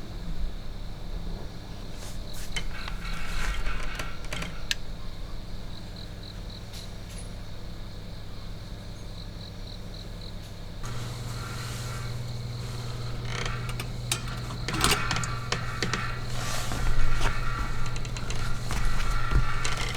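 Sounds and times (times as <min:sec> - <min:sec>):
clicks and rattles of handling: 0:02.4 - 0:04.9, 0:10.8 - 0:19.9
steady low hum: 0:10.8 - 0:19.9.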